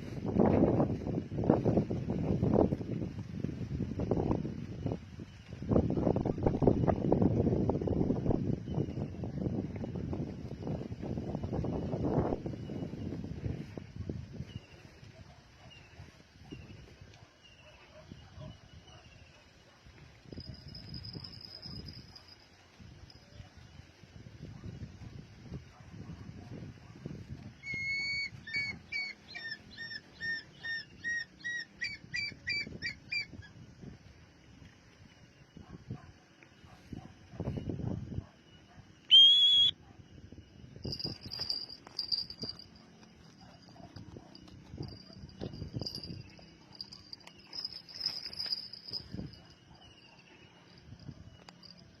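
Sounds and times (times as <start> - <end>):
insects chirring: 0.0 - 52.0
eagle whistled calls: 27.6 - 33.5, 38.6 - 39.8.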